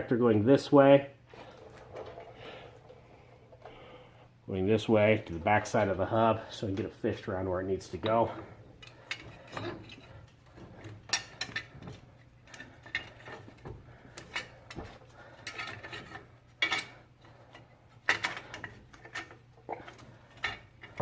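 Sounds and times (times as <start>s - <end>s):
steady low hum: 0.0s - 21.0s
metal clinks and scrapes: 7.9s - 21.0s.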